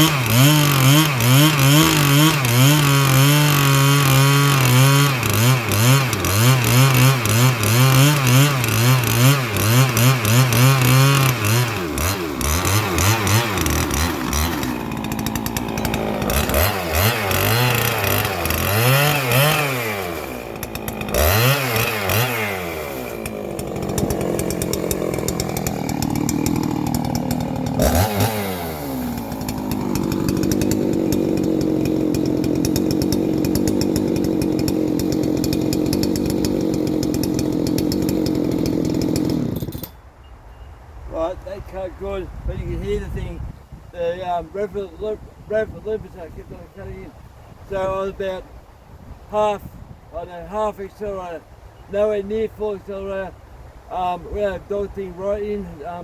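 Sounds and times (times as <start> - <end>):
chainsaw cutting log: 0.0 - 40.0.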